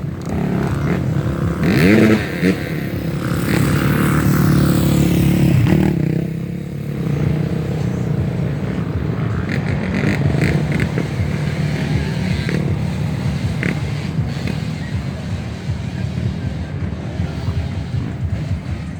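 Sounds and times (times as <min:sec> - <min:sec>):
dirt bike engine running: 0:00.0 - 0:18.9.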